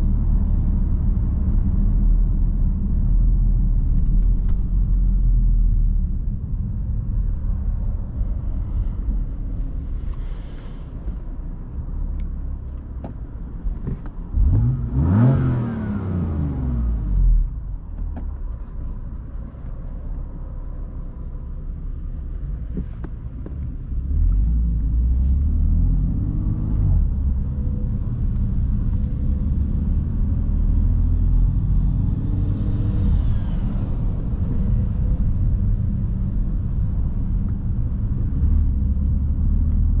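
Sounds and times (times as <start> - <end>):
low road rumble: 0.0 - 40.0
car engine accelerating: 13.9 - 18.3, 22.5 - 40.0.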